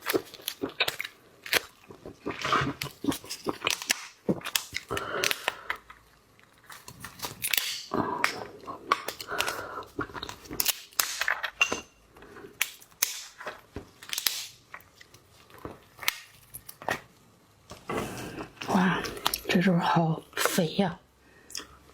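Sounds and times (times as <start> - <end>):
wet chewing: 0.0 - 11.5
lobster shell cracking: 0.0 - 11.7, 12.5 - 17.1.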